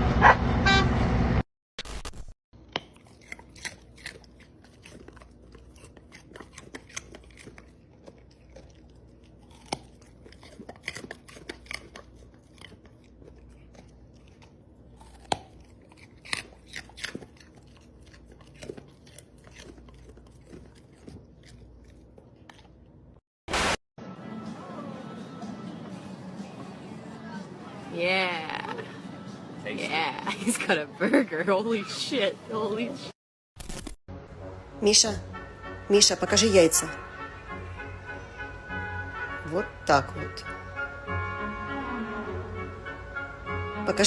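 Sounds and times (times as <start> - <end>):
animal chewing crunchy food: 2.8 - 22.9.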